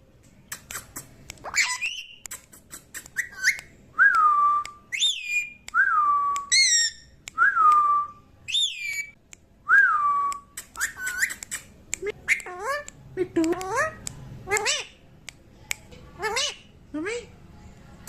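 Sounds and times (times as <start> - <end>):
parrot chirping: 0.5 - 3.7, 4.9 - 5.7, 6.5 - 7.2, 8.5 - 9.2, 10.5 - 15.0.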